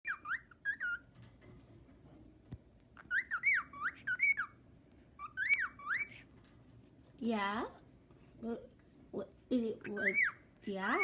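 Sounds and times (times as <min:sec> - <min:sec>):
pet bird whistling: 0:00.0 - 0:01.0, 0:03.0 - 0:04.6, 0:05.2 - 0:06.2, 0:09.9 - 0:11.0.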